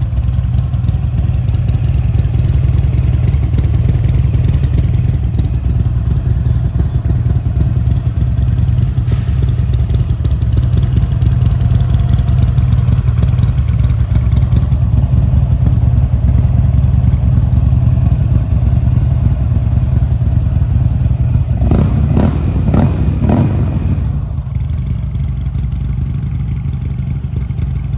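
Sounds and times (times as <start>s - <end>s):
motorcycle engine idling: 0.0s - 27.9s
engine revving bursts: 21.6s - 24.2s.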